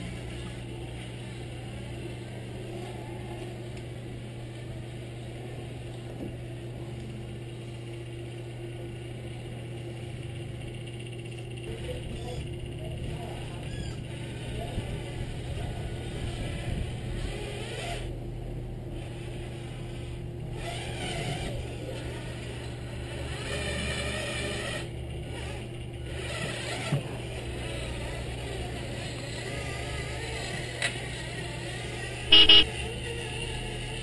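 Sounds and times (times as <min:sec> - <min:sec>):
toy truck engine hum: 0:00.0 - 0:34.0
truck horn blast: 0:32.3 - 0:32.7.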